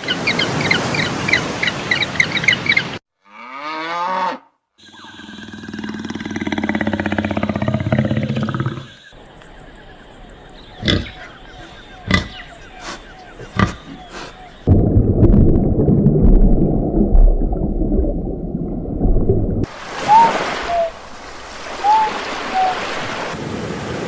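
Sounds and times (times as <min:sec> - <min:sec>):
short falling animal call: 0:19.9 - 0:23.4
low pulsing animal call: 0:20.0 - 0:21.0, 0:21.6 - 0:23.3.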